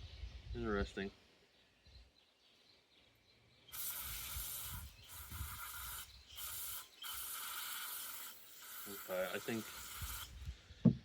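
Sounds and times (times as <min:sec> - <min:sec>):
pressurised spray hissing: 0:03.7 - 0:10.4.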